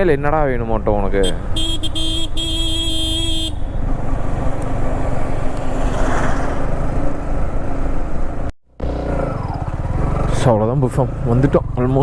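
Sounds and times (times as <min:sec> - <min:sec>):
motorcycle rumble: 0:00.0 - 0:12.0
vehicle horn: 0:01.2 - 0:03.9.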